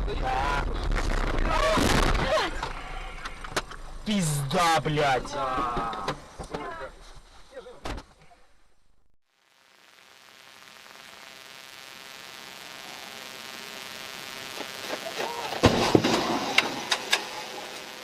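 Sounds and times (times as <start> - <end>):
loud thump: 15.6 - 16.8.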